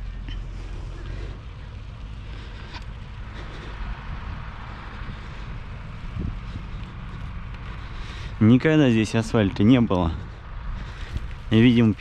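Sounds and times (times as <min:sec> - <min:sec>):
bicycle tyres on rough road: 0:00.0 - 0:12.0
wind on microphone: 0:03.8 - 0:07.4.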